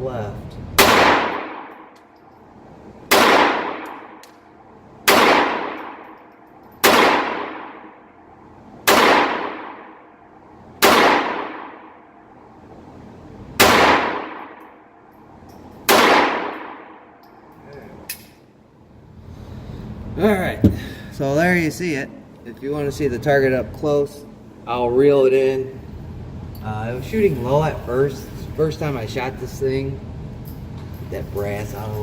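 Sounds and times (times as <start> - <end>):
pistol shots with echo: 0.8 - 2.0, 3.1 - 4.4, 5.0 - 8.1, 8.8 - 10.2, 10.8 - 12.2, 13.6 - 14.9, 15.9 - 17.2.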